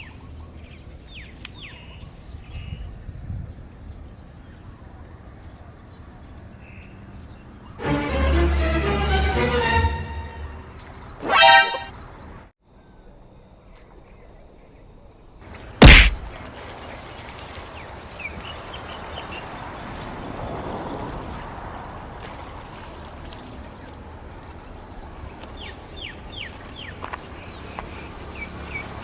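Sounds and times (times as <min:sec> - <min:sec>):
falling whistled notes: 0:11.2 - 0:11.9
loud thump: 0:15.8 - 0:16.3
small birds chirping: 0:24.6 - 0:29.0.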